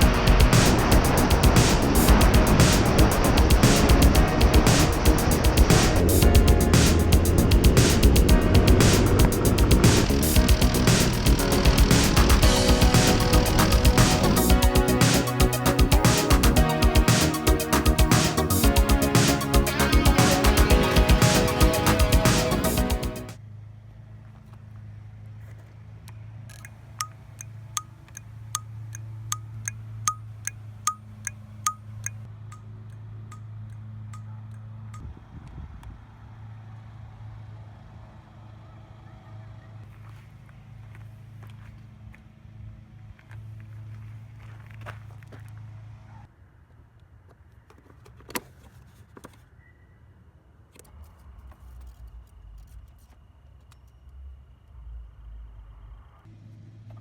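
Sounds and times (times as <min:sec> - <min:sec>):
low rumble: 0:00.0 - 0:15.0
steady low hum: 0:00.0 - 0:23.3
small metallic clicks: 0:26.0 - 0:35.1.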